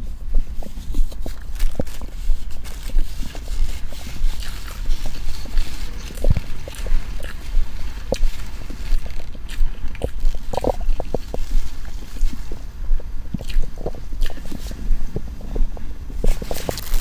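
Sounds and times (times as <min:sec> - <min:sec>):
steady low rumble: 0:00.0 - 0:17.0
stomach gurgles: 0:00.0 - 0:17.0.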